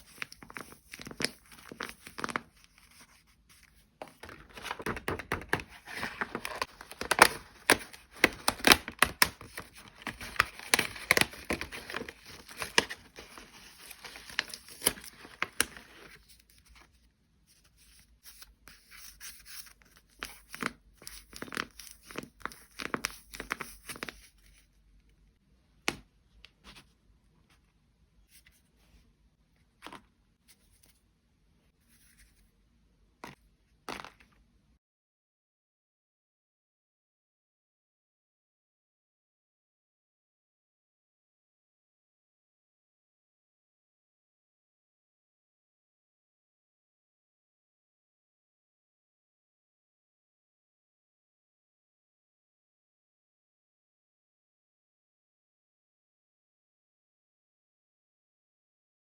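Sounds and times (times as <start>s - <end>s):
packaging being torn and crinkled: 4.2s - 16.2s.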